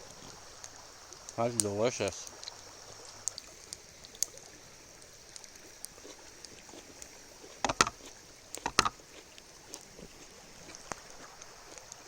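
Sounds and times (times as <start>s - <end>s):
sharp knocks: 7.6s - 8.0s, 8.6s - 9.0s.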